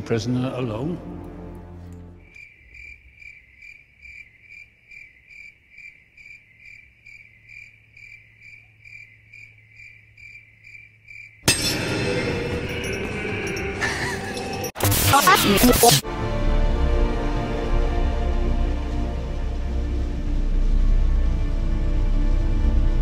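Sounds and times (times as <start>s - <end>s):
cricket chirping: 2.2s - 11.6s.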